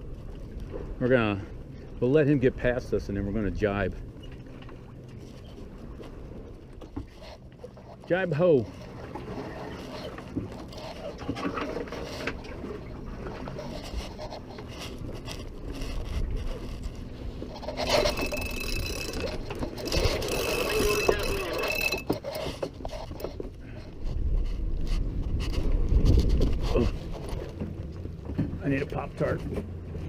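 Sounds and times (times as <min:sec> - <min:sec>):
sail rustling and scraping: 0:00.0 - 0:30.0
thin high squeal: 0:17.6 - 0:22.5
wind on microphone: 0:22.9 - 0:27.6.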